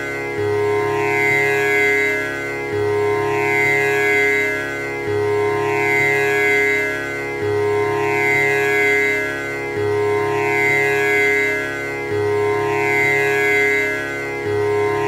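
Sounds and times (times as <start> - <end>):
tanpura drone with plucked strings: 0.0 - 15.0.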